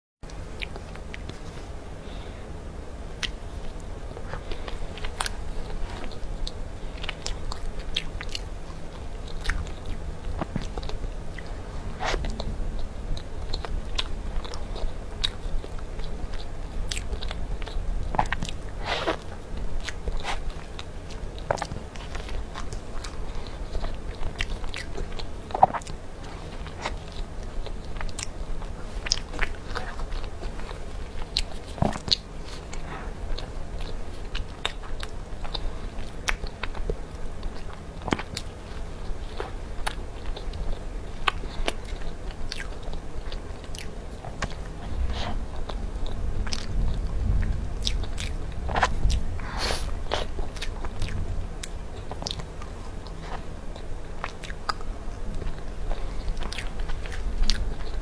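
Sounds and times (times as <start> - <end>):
low rumble: 10.3 - 15.2, 44.7 - 52.2.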